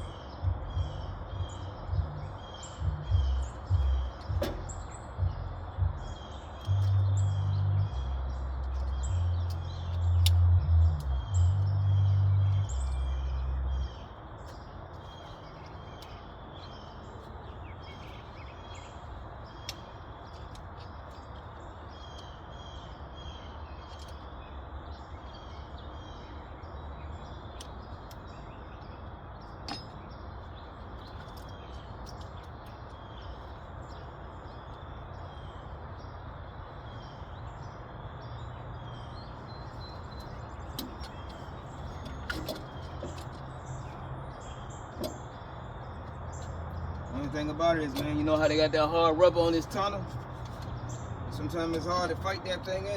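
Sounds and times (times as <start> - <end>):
small birds chirping: 0.0 - 52.9
loud low rumble: 0.4 - 14.0.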